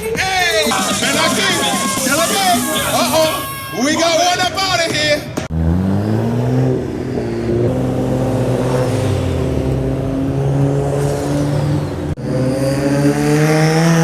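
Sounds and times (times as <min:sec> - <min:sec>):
car engine running: 0:05.4 - 0:12.5
engine revving up: 0:05.4 - 0:14.0.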